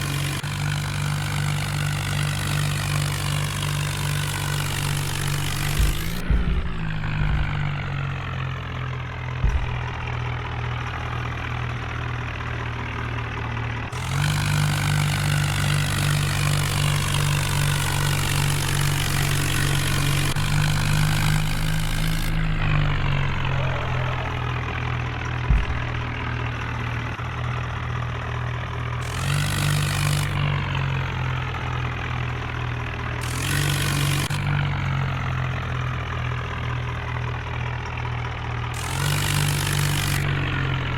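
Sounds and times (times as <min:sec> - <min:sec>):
tractor engine running: 0:00.0 - 0:40.9
sharp knock: 0:05.4 - 0:08.4, 0:09.4 - 0:10.4, 0:25.5 - 0:26.7.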